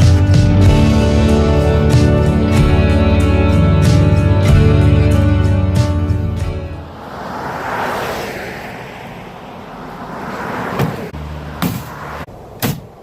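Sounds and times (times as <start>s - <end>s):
acoustic guitar music: 0.0s - 6.9s
rushing noise: 6.7s - 11.2s
sharp knocks: 11.6s - 12.0s.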